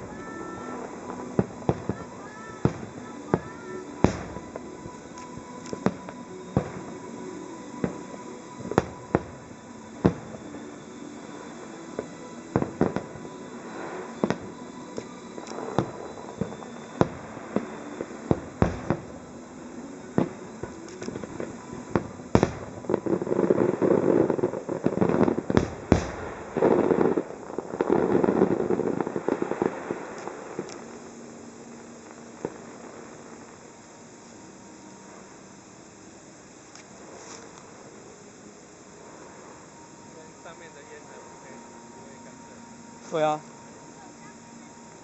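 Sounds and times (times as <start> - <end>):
crackling of crackle shells: 0.0 - 6.7, 19.9 - 31.2
firework shells bursting: 0.0 - 31.1.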